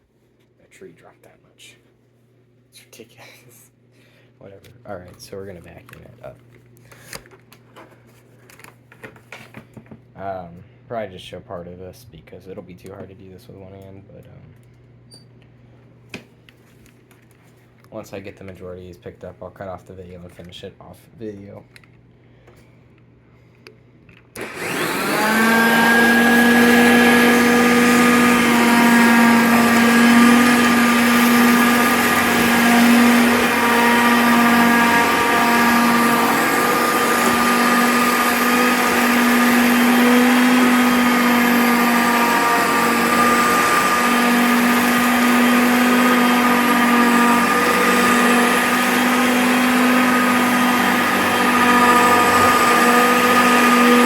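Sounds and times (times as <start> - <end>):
upright vacuum cleaner whining: 24.3 - 54.0
vacuum sucking up plastic needles: 24.4 - 54.0.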